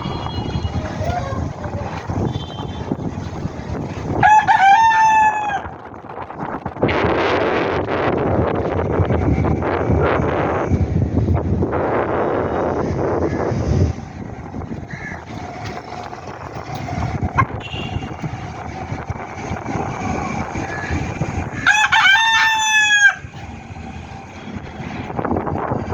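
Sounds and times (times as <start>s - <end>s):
wind noise on microphone: 0.0s - 25.9s
rooster crowing: 4.2s - 5.7s, 21.6s - 23.4s.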